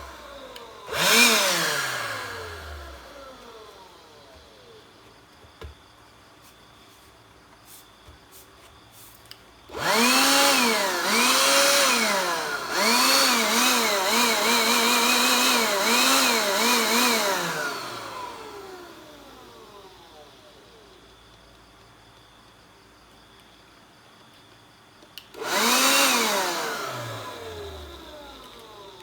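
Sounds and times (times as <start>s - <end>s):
electric dust blower motor whining: 0.0s - 5.7s, 9.7s - 21.0s, 25.3s - 29.0s.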